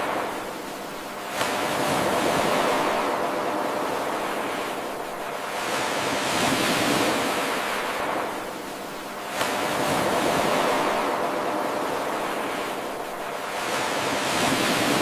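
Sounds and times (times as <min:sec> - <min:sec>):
ocean surf washing onto shore: 0:00.0 - 0:15.0.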